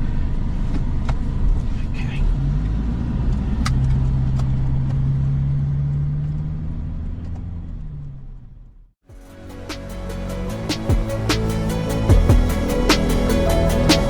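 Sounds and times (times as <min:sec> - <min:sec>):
car engine humming: 0:02.6 - 0:14.0
music: 0:09.1 - 0:14.0.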